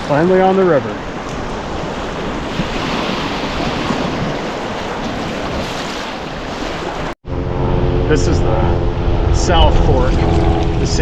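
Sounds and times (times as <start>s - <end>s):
river water rushing: 0.0s - 7.2s
wind on microphone: 1.0s - 11.0s.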